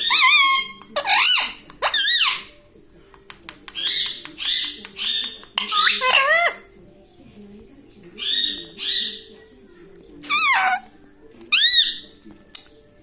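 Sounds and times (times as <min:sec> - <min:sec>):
parrot calling and chattering: 0:00.0 - 0:02.5, 0:03.8 - 0:06.7, 0:08.2 - 0:09.3, 0:10.2 - 0:10.9, 0:11.5 - 0:12.0.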